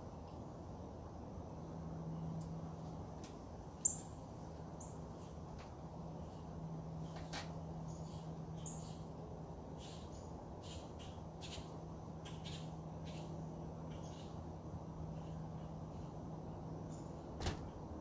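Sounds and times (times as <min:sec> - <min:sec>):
steady low hum: 0:00.0 - 0:18.0
birds chirping: 0:03.8 - 0:05.4, 0:06.0 - 0:17.8.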